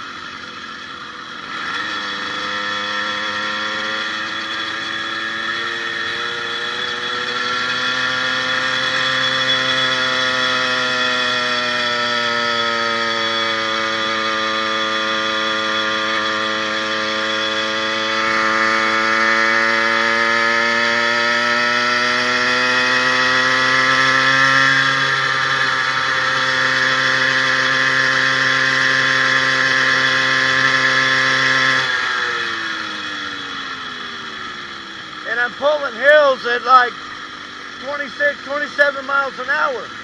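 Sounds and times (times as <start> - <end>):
two-stroke engine running hard: 0.0 - 40.0.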